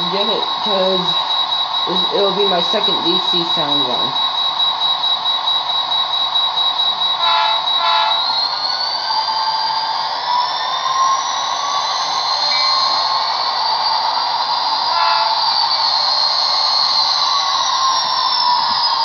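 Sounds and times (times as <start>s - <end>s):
model locomotive engine sound: 0.0s - 19.0s
short horn toots: 7.2s - 8.2s.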